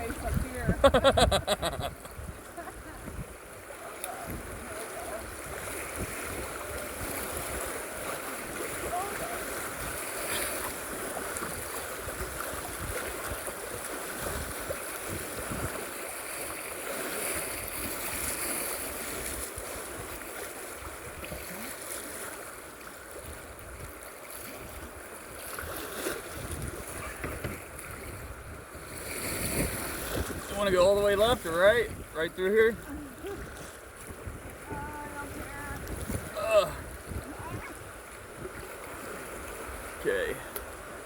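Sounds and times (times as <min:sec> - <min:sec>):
wind rumbling on microphone: 0:00.0 - 0:16.0, 0:25.6 - 0:32.2, 0:32.8 - 0:40.0
river water rushing: 0:02.4 - 0:28.2, 0:34.6 - 0:41.0.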